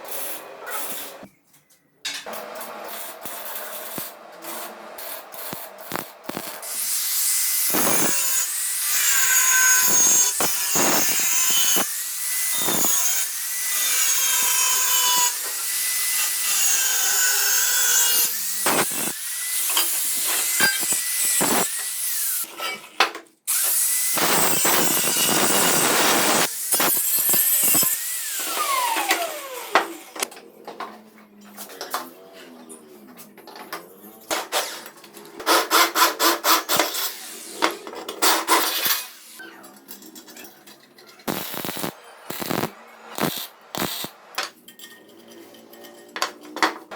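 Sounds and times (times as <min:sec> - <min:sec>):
power tool motor whine cutting: 0:23.5 - 0:30.2, 0:41.3 - 0:44.3.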